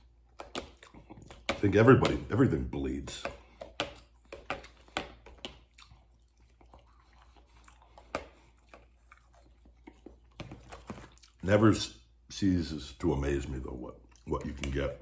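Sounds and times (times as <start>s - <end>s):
man chewing food: 0.0s - 2.4s, 3.1s - 11.5s, 13.9s - 14.8s.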